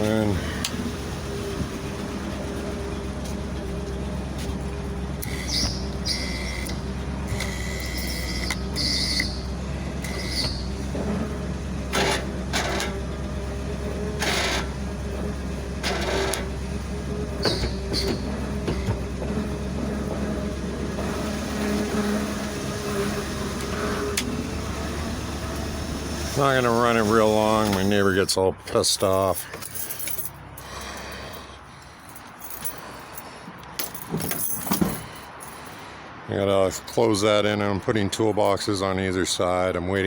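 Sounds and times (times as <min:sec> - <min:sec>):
hydraulic whines: 0:00.0 - 0:28.3
truck engine idling: 0:00.0 - 0:40.0.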